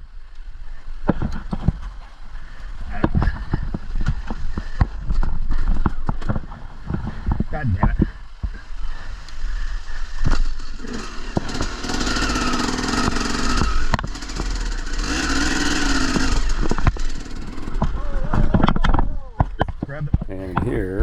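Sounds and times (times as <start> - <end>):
motorcycle engine revving: 10.5 - 18.0.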